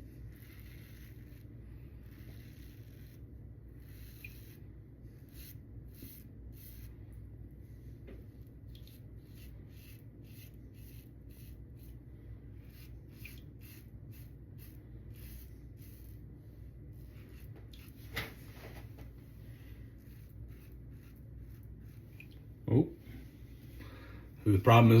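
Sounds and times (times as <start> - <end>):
razor scraping stubble: 0.0 - 7.0, 8.7 - 12.0, 12.6 - 16.3, 17.0 - 19.0, 20.0 - 22.3.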